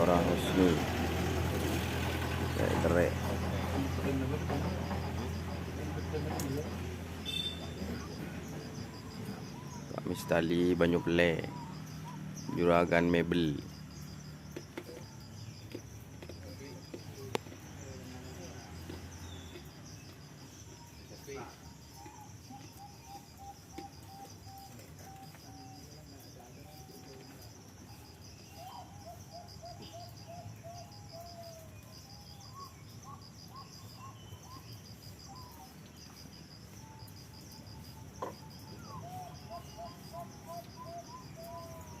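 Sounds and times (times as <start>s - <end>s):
birds calling: 0.0s - 42.0s
insect chirping: 0.0s - 42.0s.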